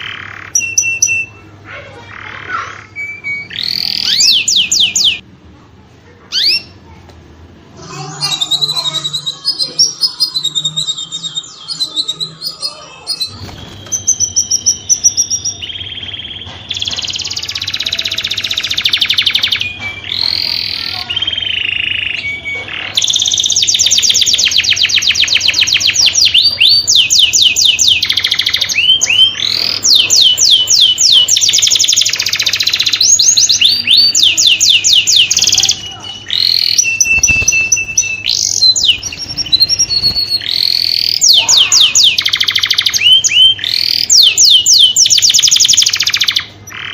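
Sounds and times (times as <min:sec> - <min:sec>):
canary singing trills: 0:00.0 - 0:05.2, 0:06.3 - 0:06.9, 0:07.8 - 0:46.9.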